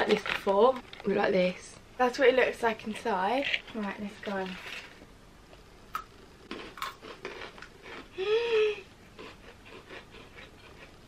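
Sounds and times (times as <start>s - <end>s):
biscuit sticks crunching and chewing: 0.0s - 1.1s, 2.7s - 5.1s, 5.9s - 8.2s, 9.0s - 11.0s
person humming mmm: 8.1s - 8.9s.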